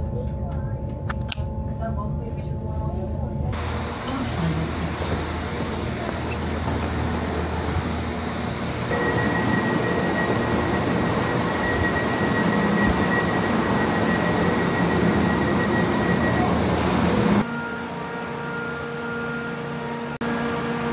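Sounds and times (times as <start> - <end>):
passenger train rumble and hiss: 1.7 - 17.7
steady high whine: 3.2 - 20.9.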